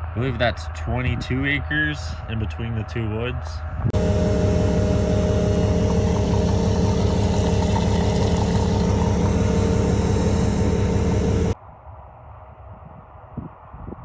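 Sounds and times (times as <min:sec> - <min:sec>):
farm machinery engine running: 0:03.9 - 0:11.6.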